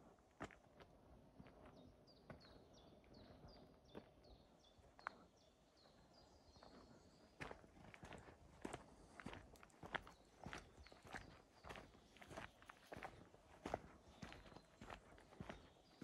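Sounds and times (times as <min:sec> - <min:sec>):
songbird singing: 0:14.0 - 0:16.0.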